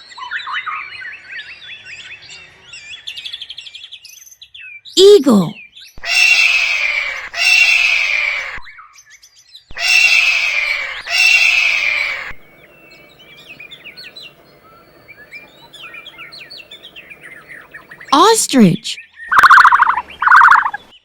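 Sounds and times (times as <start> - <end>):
eagle screeching: 6.0 - 8.5, 9.7 - 12.4
small birds chirping: 9.7 - 18.1.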